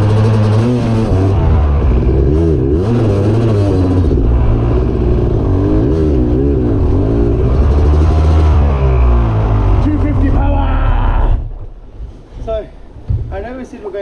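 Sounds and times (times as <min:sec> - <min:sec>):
dirt bike engine revving: 0:00.0 - 0:11.8.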